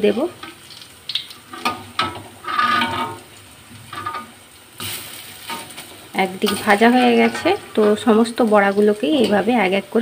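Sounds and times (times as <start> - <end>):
fritters sizzling in hot oil: 0.0 - 10.0
metal spatula scraping a pan: 1.5 - 8.3.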